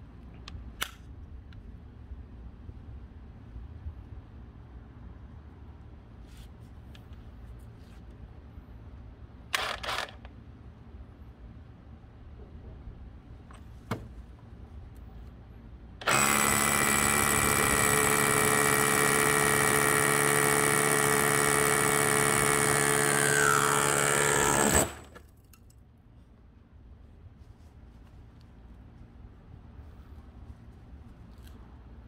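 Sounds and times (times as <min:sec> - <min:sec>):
rotary hammer drilling concrete: 0:16.0 - 0:25.2.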